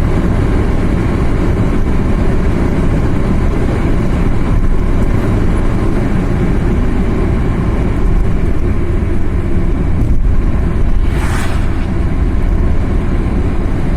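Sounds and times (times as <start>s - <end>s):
car engine and road rumble: 0.0s - 13.9s
brief rushing hiss: 10.7s - 12.7s.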